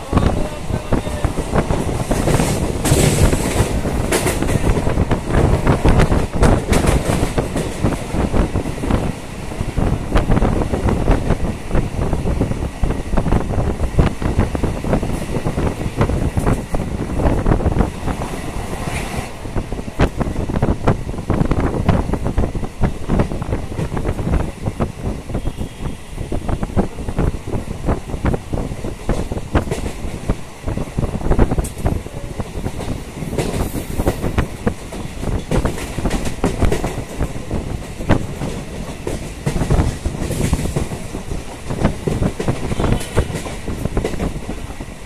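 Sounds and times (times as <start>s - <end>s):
train rumbling on tracks: 0.0s - 45.0s
wheels clattering over rail joints: 1.6s - 8.2s.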